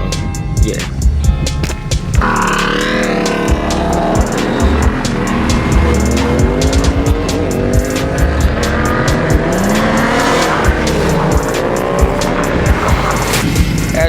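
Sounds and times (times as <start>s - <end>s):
car engine revving: 0.0s - 14.0s
music with steady beat: 0.0s - 14.0s
tires squealing: 0.0s - 14.0s.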